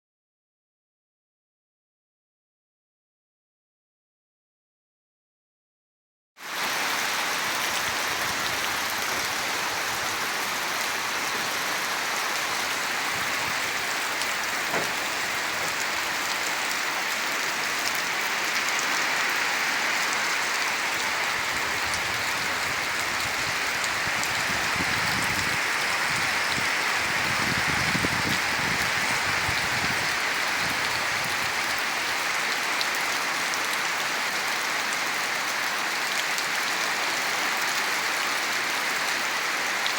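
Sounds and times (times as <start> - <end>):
heavy rain falling: 6.4 - 39.9.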